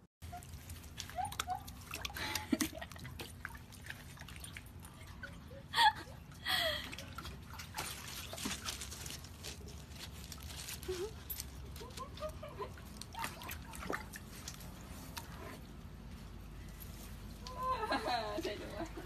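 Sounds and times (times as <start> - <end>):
small water splashes: 0.2 - 5.6, 6.7 - 9.8, 12.6 - 15.2
water sloshing and dripping: 0.2 - 19.0.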